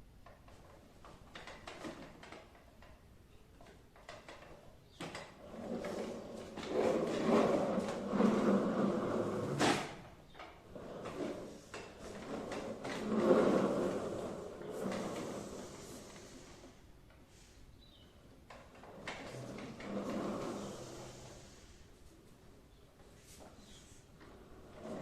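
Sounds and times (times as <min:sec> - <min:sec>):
toy car rolling on hard floor: 0:04.0 - 0:10.0, 0:10.7 - 0:16.6, 0:18.5 - 0:21.6, 0:24.2 - 0:25.0.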